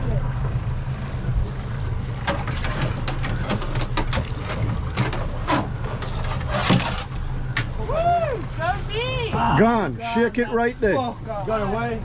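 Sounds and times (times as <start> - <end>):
outboard motor droning: 0.0 - 12.0.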